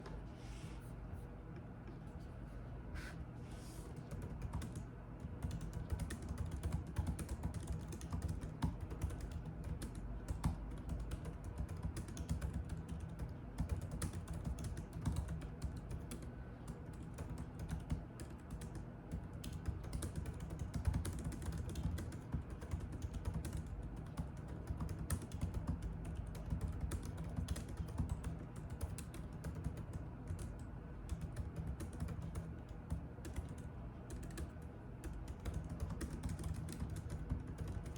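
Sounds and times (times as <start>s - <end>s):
low steady hum: 0.0s - 37.9s
typing on computer keyboard: 4.0s - 37.9s.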